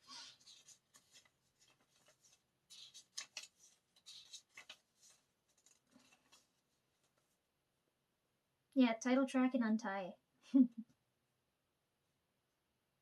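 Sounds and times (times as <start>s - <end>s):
paper rustling and clicking: 0.0s - 7.3s.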